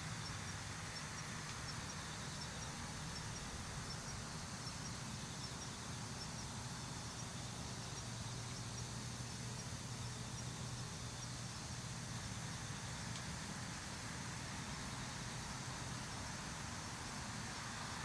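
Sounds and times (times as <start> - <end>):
insect chirping: 0.0 - 12.9
low hum and hiss: 0.0 - 18.0.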